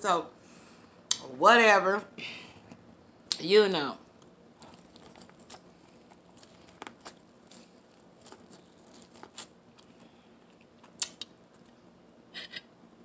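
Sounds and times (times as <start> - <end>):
person chewing corn on the cob: 4.2 - 11.8.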